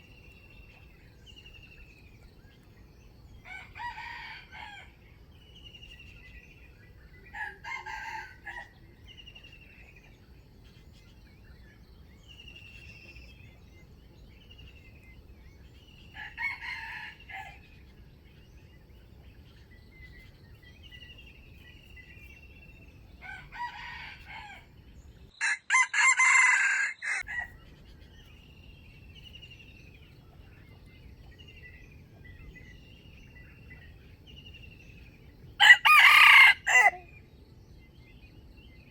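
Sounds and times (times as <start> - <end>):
bird chirping: 0.0 - 26.2, 27.0 - 38.9
roosters crowing: 3.4 - 5.0, 7.3 - 8.8, 16.0 - 17.8, 23.1 - 24.8, 25.4 - 27.6, 35.5 - 37.1.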